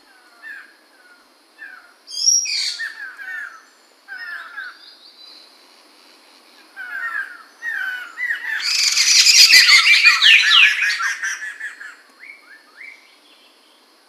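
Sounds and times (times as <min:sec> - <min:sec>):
bird singing gliding whistles: 0:02.1 - 0:05.5, 0:06.9 - 0:13.8.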